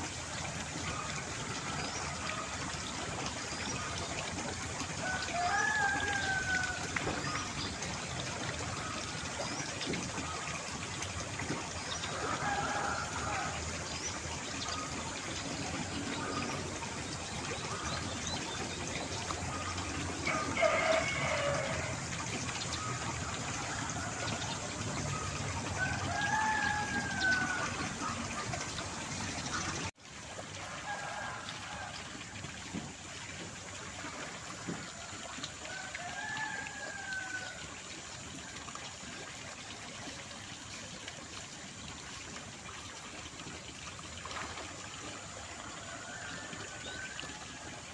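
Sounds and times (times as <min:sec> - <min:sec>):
trickle of running water: 0:00.0 - 0:47.9
rooster crowing: 0:05.0 - 0:06.8, 0:20.3 - 0:21.9.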